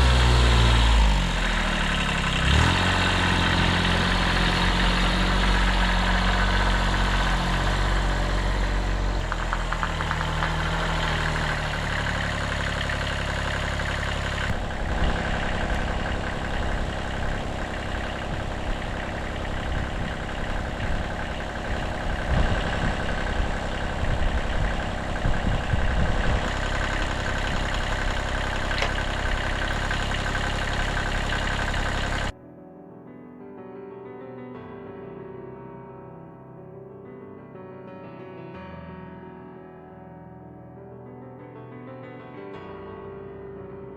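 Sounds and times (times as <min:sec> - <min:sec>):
diesel engine running: 0:00.0 - 0:32.3.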